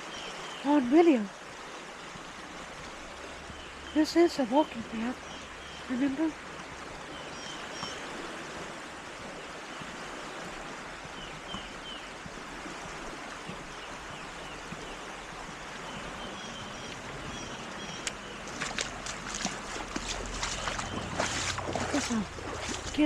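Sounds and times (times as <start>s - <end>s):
river rushing: 0.0s - 23.0s
water splashing: 0.6s - 23.0s.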